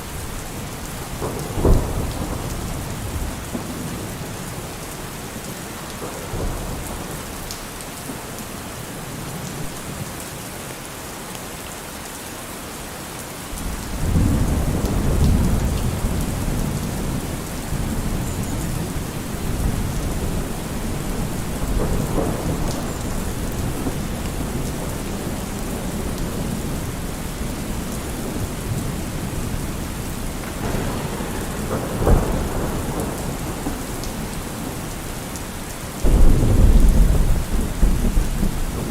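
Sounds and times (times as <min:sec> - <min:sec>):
rolling thunder: 0:00.0 - 0:04.8, 0:13.6 - 0:38.9
heavy rain: 0:00.0 - 0:38.9
sharp thunderclap: 0:01.1 - 0:04.3, 0:13.6 - 0:35.1, 0:36.0 - 0:38.9.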